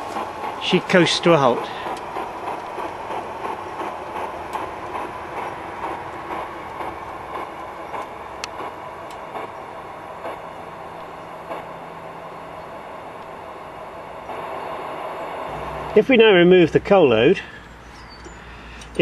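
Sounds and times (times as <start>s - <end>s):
model steam locomotive hissing: 0.0s - 16.5s
sharp clicks: 1.6s - 10.4s.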